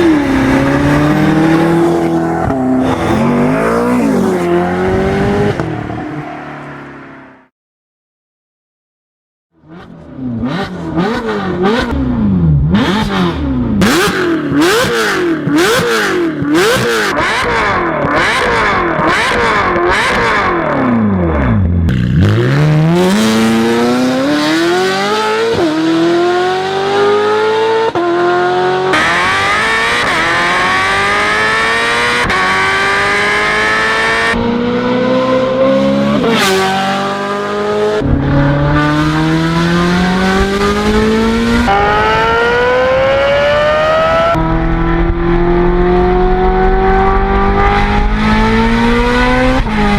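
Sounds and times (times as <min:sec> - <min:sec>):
car accelerating through gears: 0:00.0 - 0:06.0, 0:22.1 - 0:49.9
car engine revving: 0:00.0 - 0:07.0, 0:09.6 - 0:49.9.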